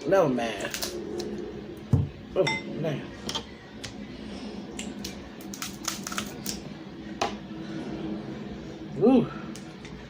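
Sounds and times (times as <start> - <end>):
crab legs cracking: 5.0 - 6.6.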